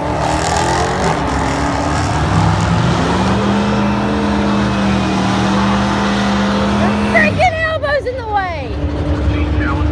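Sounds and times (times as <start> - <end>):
car engine revving hard: 0.0 - 7.7.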